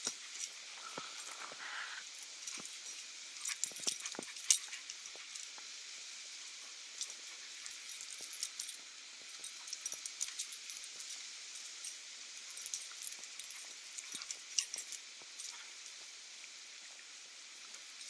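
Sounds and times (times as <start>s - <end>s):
light clicks and clinks: 0.0s - 18.0s.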